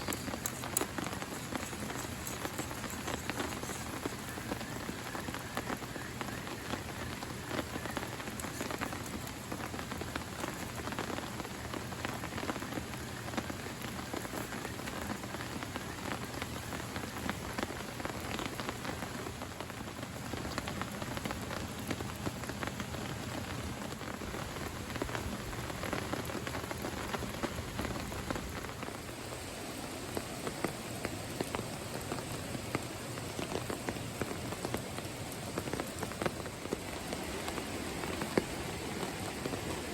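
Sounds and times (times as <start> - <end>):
rain falling: 0.0 - 39.9
raindrops striking a surface: 0.0 - 39.9.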